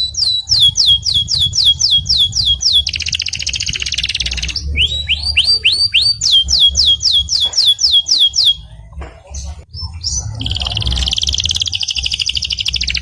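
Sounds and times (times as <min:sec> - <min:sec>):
canary singing: 0:00.0 - 0:13.0.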